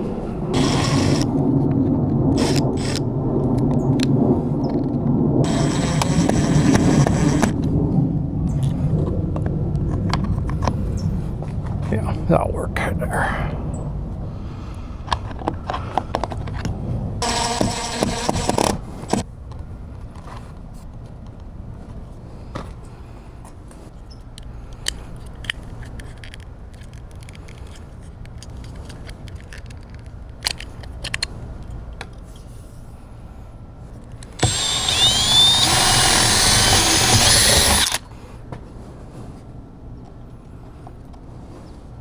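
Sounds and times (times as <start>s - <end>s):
power drill running: 0.5s - 1.4s, 2.3s - 3.0s, 5.4s - 7.6s, 17.2s - 19.2s, 34.2s - 38.0s
handling clicks and knocks: 24.8s - 31.4s.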